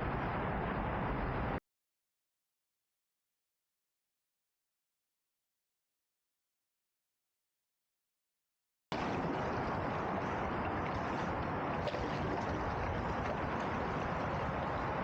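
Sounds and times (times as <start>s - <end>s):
wind: 0.0s - 1.6s, 8.9s - 15.0s
water rushing around canoe: 9.0s - 15.0s.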